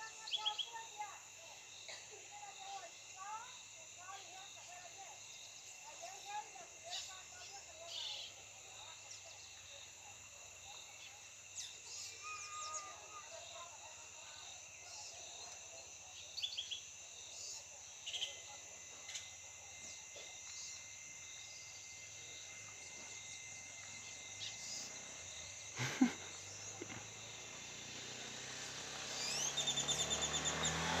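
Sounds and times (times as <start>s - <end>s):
high insect drone: 0.0s - 31.0s
wild birds calling: 24.0s - 31.0s.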